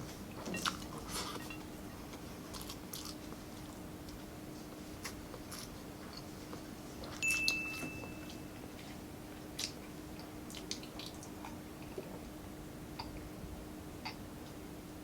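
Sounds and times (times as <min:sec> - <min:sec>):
steady low hum: 0:00.0 - 0:15.0
brief high-pitched tone: 0:07.2 - 0:08.6
chewing clicks and smacks: 0:09.6 - 0:12.1.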